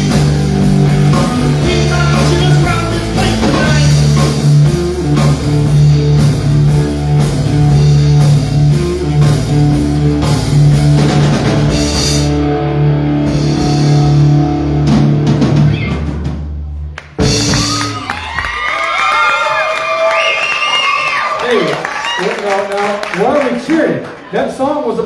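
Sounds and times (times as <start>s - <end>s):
country-rock band playing: 0.0s - 18.7s.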